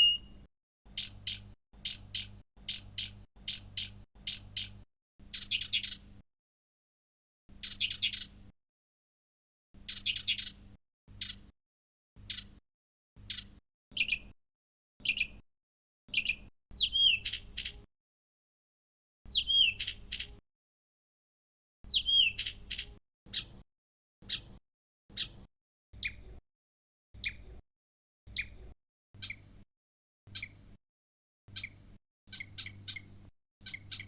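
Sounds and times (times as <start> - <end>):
bird whistled phrase: 0.0 - 0.3, 19.3 - 20.0, 21.9 - 22.5
bird calling sharp notes: 0.0 - 0.4.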